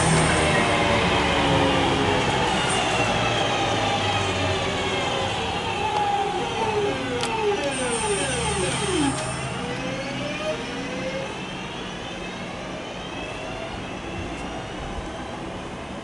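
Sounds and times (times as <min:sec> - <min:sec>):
electric train motor whine: 0:02.5 - 0:14.7.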